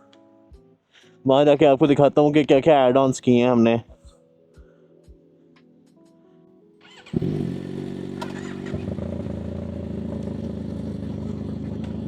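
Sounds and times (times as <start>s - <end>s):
motorcycle engine starting and idling: 6.8s - 12.0s.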